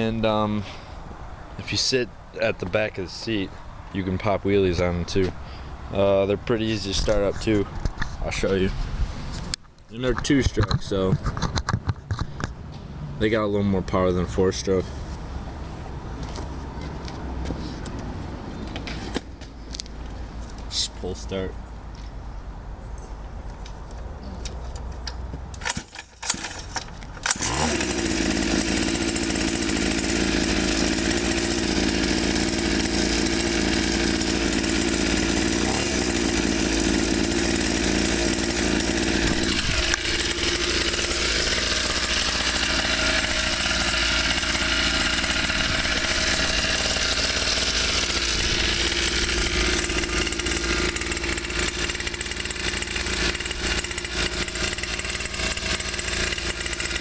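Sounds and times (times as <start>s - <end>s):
two-stroke engine buzzing: 25.6s - 57.0s.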